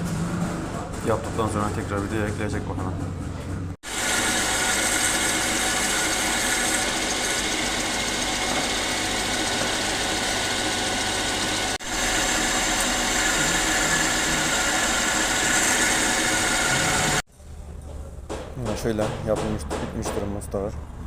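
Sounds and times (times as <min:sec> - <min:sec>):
motor running: 0:03.8 - 0:17.2.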